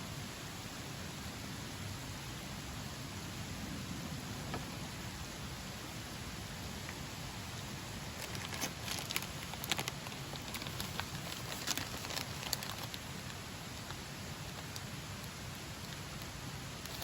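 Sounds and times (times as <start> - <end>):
wood fire crackling: 7.9 - 17.0.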